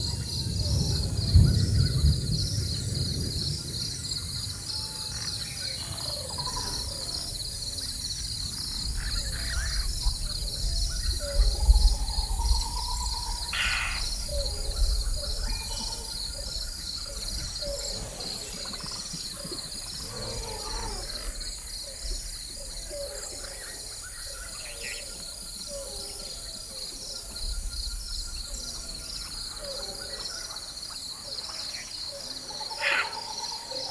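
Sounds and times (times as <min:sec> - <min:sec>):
distant thunder rumbling: 0:00.0 - 0:05.4, 0:06.4 - 0:22.4
insects chorus with pulsing trill: 0:00.0 - 0:33.9
bird calls: 0:05.6 - 0:26.4.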